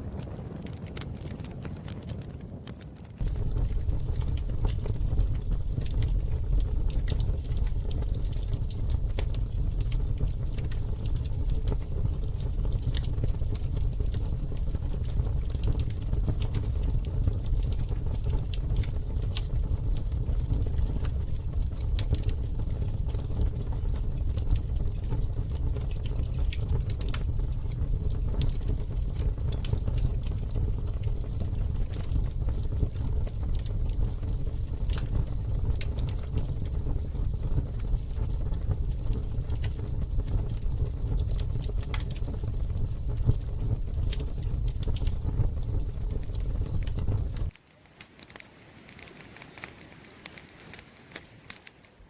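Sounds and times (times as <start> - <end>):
campfire crackling and popping: 0.0 - 52.0
low rumble: 3.2 - 47.5.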